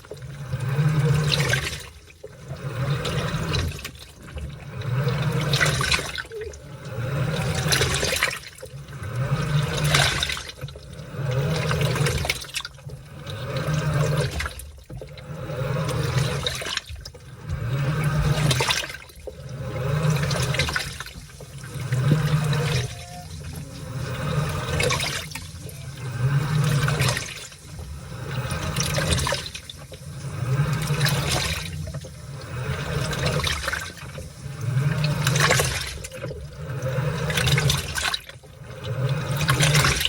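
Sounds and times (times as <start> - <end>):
washing machine motor hum: 0.0 - 40.0
water sloshing: 0.0 - 40.0.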